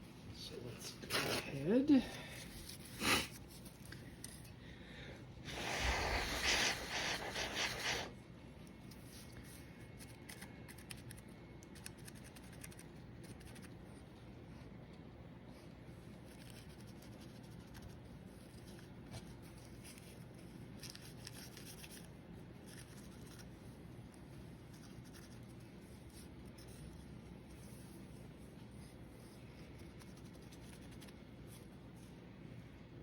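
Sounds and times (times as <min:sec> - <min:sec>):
low room hum: 0:00.0 - 0:33.0
small paintbrush scratching: 0:05.5 - 0:08.1, 0:16.1 - 0:23.8, 0:24.5 - 0:31.8.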